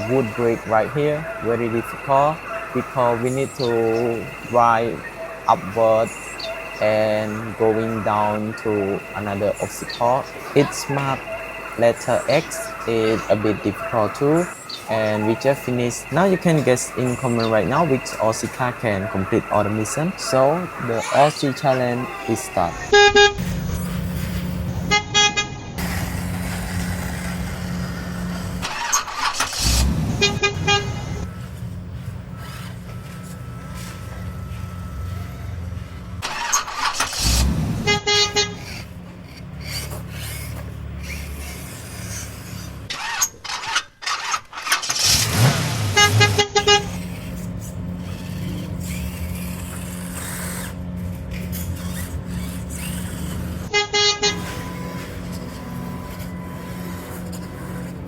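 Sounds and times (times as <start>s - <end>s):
rapid horn-like beeps: 0.0s - 25.6s, 29.6s - 36.3s, 37.2s - 38.8s, 45.9s - 47.5s, 48.4s - 58.0s.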